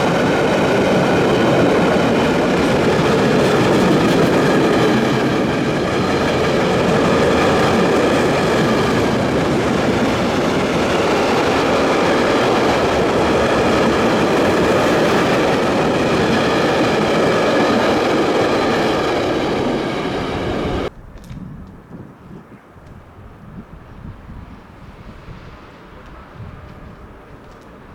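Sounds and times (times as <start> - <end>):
freight train passing: 0.0 - 20.9, 23.9 - 27.9
wheels rattling on rails: 0.0 - 20.9
faint wind noise: 0.0 - 27.9.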